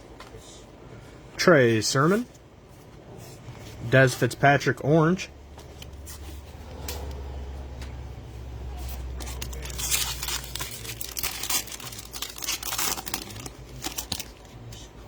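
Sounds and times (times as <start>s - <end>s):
foil wrapper tearing and crinkling: 9.2s - 14.5s.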